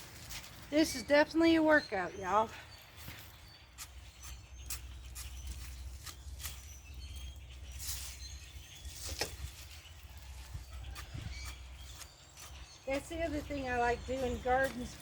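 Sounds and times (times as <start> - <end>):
birds chirping: 0.0 - 15.0
garden tool scraping soil: 3.7 - 15.0.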